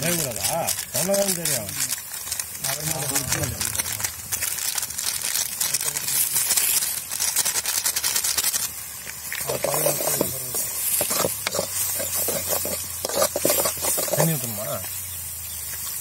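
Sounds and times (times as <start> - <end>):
meat frying and sizzling: 0.0 - 16.0
metal spatula scraping pan: 9.5 - 14.6.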